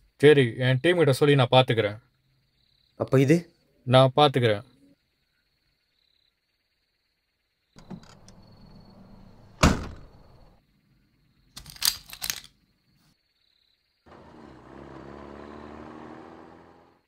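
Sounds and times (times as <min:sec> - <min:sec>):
sharp knocks: 0:07.8 - 0:10.5
heavy thunk: 0:07.8 - 0:10.6
lorry engine rumbling: 0:07.8 - 0:10.6, 0:14.1 - 0:17.0.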